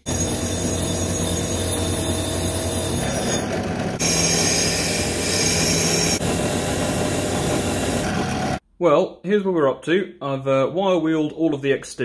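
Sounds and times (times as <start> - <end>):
drill press motor hum: 0.0 - 8.6.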